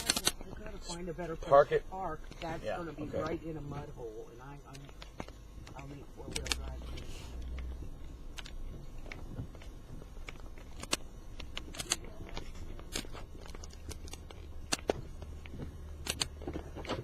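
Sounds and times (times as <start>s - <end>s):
gear clicking and rattling: 4.8s - 17.0s.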